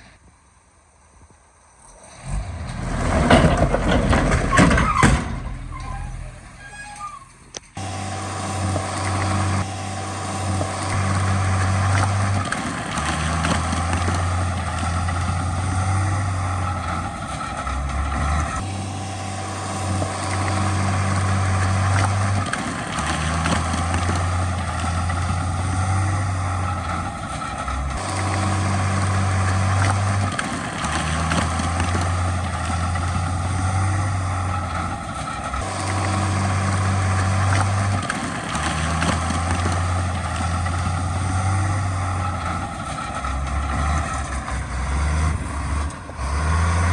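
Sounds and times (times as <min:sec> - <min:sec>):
diesel engine drone: 0:00.0 - 0:46.9
mechanical clattering: 0:02.6 - 0:07.8.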